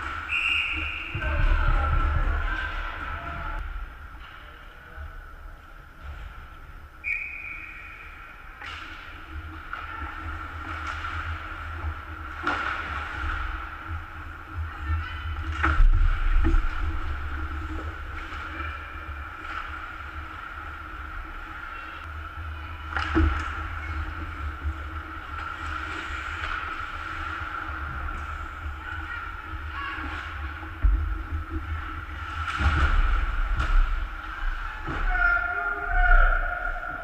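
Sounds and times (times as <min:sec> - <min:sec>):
arena rumble: 0:01.1 - 0:07.0.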